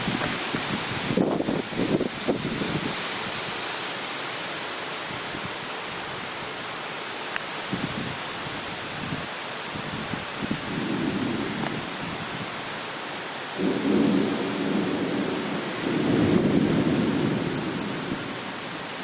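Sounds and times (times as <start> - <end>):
thunder rumbling: 0.0 - 3.1, 9.8 - 12.5, 13.6 - 19.0
steady rain: 0.0 - 19.0.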